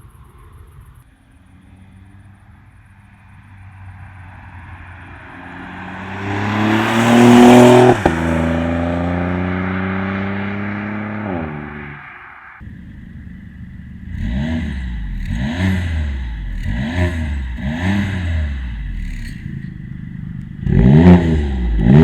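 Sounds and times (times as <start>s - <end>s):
car engine accelerating hard: 1.4s - 22.0s.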